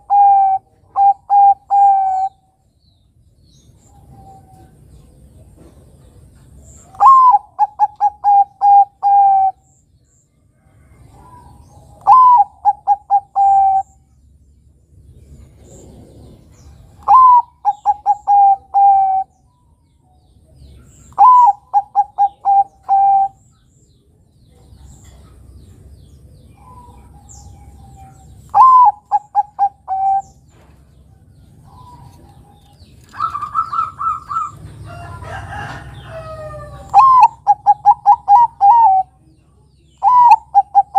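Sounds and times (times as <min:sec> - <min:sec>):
dove cooing: 0:00.0 - 0:02.4, 0:06.8 - 0:09.6, 0:11.0 - 0:14.0, 0:15.6 - 0:19.3, 0:21.1 - 0:23.4, 0:26.6 - 0:30.6, 0:31.6 - 0:39.2, 0:40.0 - 0:40.9
overlapping higher bird calls: 0:00.0 - 0:10.1, 0:11.1 - 0:14.4, 0:15.3 - 0:40.9.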